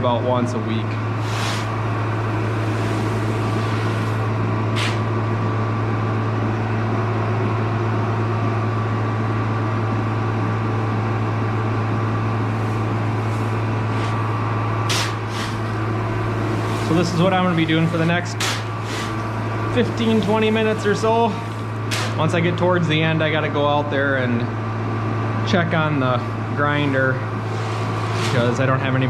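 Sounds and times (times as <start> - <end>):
grain machinery humming: 0.0 - 29.0
shovel scraping corn: 1.2 - 1.7, 2.5 - 4.2, 4.8 - 5.0, 12.6 - 22.2, 27.5 - 28.6.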